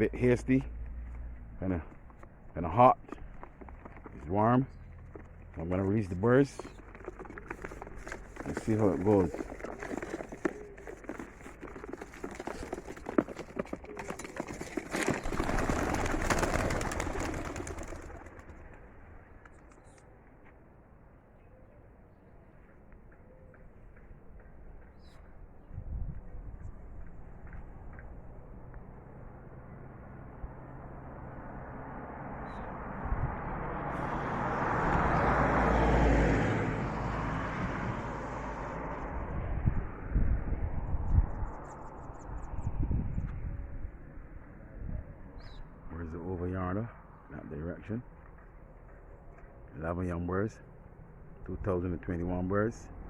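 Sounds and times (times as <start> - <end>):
pigeon wingbeats clattering: 3.1 - 20.0
vehicle passing by: 28.1 - 51.6.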